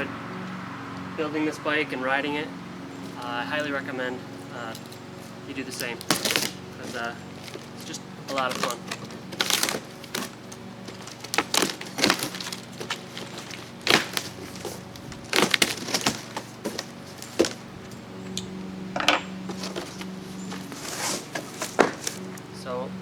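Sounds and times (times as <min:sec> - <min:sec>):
parts knocking: 0:04.6 - 0:22.5
packaging crackling: 0:05.6 - 0:22.5.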